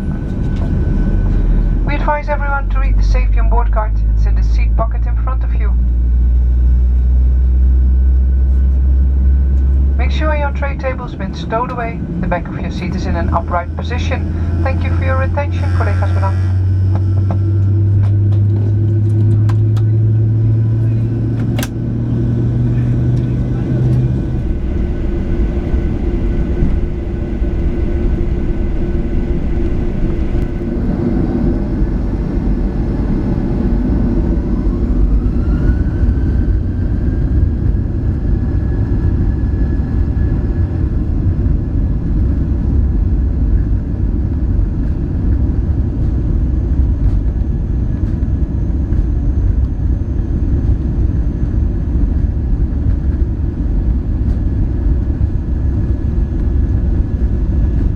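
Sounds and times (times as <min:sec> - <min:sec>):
jet engines spooling up: 0:00.0 - 0:04.5, 0:08.6 - 0:40.6.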